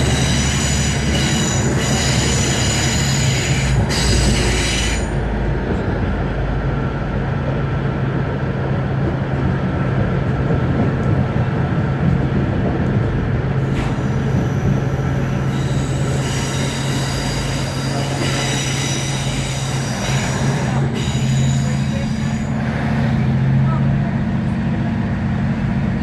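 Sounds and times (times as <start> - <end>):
train wheels rumbling on track: 0.0 - 26.0
diesel engine drone: 13.0 - 26.0
high-pitched wheel squeal: 13.8 - 22.6.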